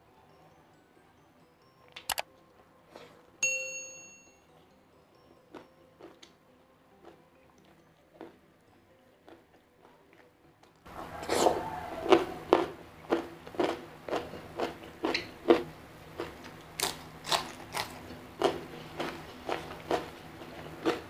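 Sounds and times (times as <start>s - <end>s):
crunchy chewing: 7.0s - 8.4s, 9.2s - 21.0s.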